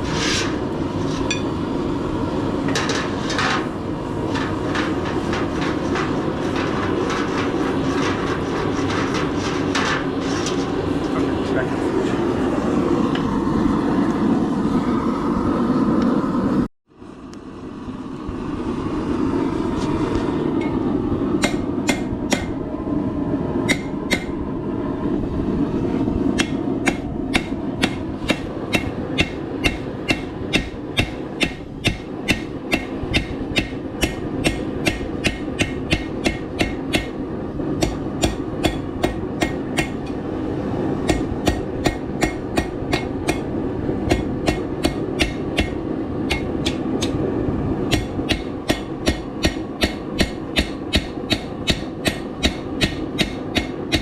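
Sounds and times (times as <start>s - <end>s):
steady rushing noise: 0.0s - 54.0s
hammer striking steel on anvil: 1.3s - 1.6s, 21.4s - 22.6s, 23.7s - 24.4s, 26.4s - 37.2s, 37.8s - 40.2s, 41.0s - 47.2s, 47.9s - 54.0s.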